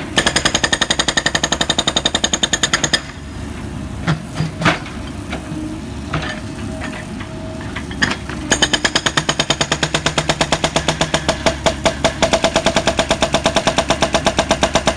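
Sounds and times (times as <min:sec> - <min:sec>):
jackhammer hammering: 0:00.2 - 0:03.2, 0:08.5 - 0:14.9.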